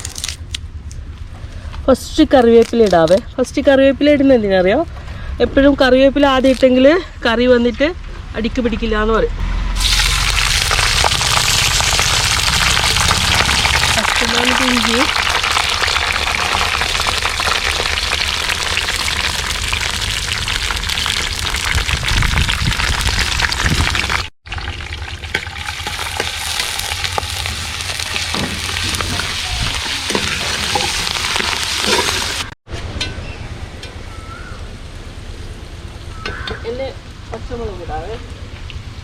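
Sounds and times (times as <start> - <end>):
frying sizzle with crackles: 9.8 - 32.6
stirring in pan: 25.3 - 32.5.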